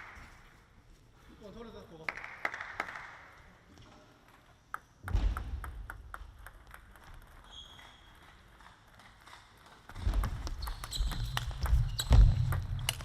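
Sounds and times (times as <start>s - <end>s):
table tennis ball clicking: 4.7s - 13.0s.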